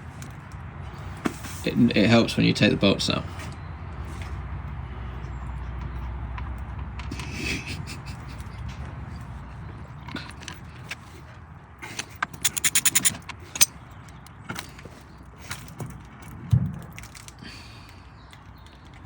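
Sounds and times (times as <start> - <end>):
metallic clicks and clinks: 12.3 - 13.7.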